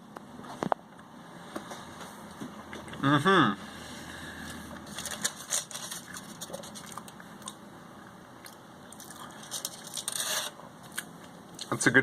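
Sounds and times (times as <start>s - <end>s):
person chewing food: 3.7s - 10.2s, 10.8s - 11.7s.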